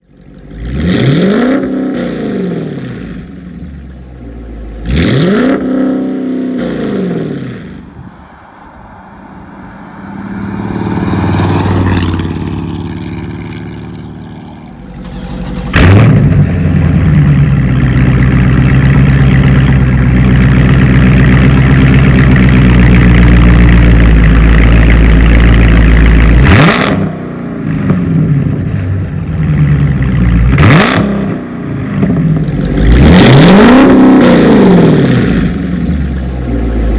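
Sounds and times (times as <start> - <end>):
car engine revving loudly: 0.4 - 3.4, 4.8 - 7.8, 14.7 - 28.5, 29.4 - 36.9.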